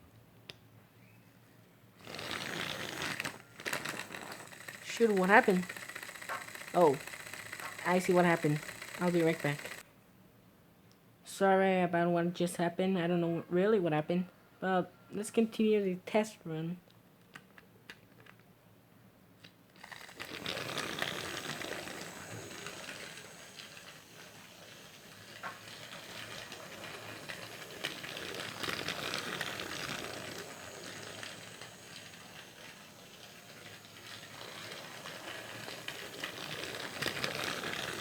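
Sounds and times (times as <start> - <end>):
toy train rattling whir: 2.0 - 9.8, 19.8 - 38.0.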